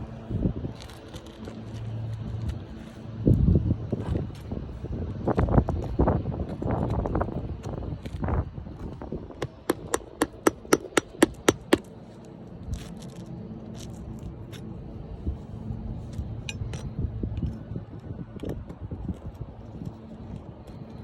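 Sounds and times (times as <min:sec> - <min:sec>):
sharp hammer strikes: 0:09.4 - 0:11.8
tools scraping roofing nails: 0:09.4 - 0:11.9.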